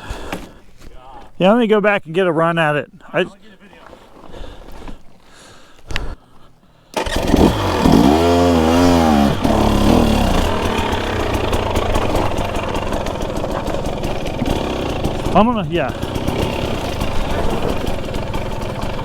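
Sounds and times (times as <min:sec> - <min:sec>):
dirt bike engine revving: 0:07.0 - 0:19.0.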